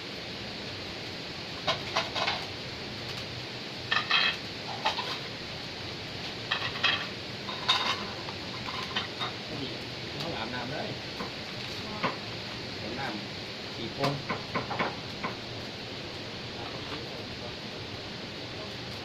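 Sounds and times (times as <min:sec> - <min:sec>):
dishes and utensils clinking: 0:06.5 - 0:09.4.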